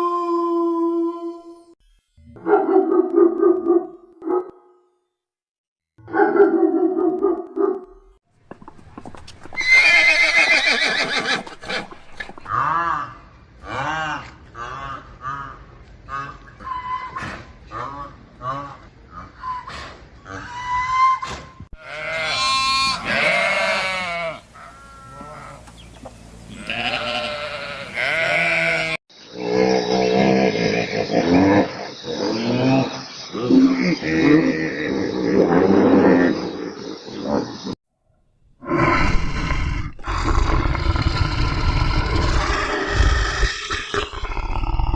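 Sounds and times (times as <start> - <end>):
horse whinnying: 9.6 - 12.0
farm animal bleating: 21.8 - 29.0
different animal sound: 38.6 - 44.9.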